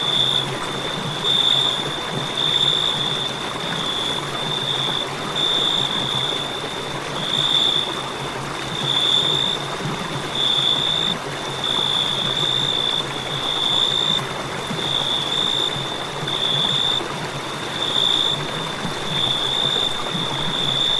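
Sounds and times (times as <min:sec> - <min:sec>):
crickets trilling: 0:00.0 - 0:20.9.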